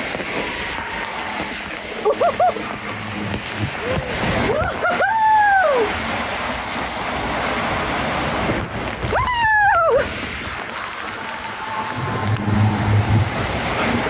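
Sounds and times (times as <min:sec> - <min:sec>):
splashing water: 0:00.0 - 0:14.0
people yelling: 0:00.3 - 0:02.8, 0:03.7 - 0:07.2, 0:09.1 - 0:14.0.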